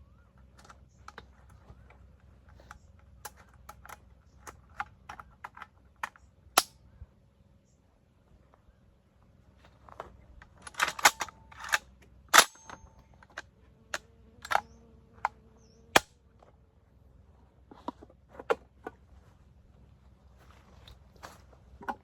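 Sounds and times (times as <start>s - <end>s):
metallic clicks of gun parts: 0.4s - 6.8s, 10.0s - 13.5s, 14.4s - 14.7s.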